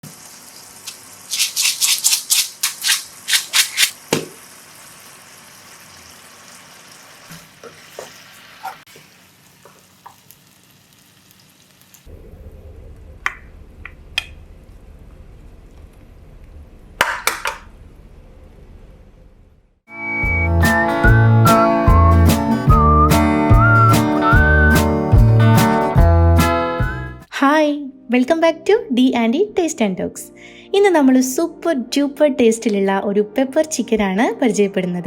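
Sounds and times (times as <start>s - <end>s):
food sizzling in a pan: 0.0s - 12.1s
spoon scraping a pan: 7.6s - 8.9s
low hum: 12.1s - 17.0s.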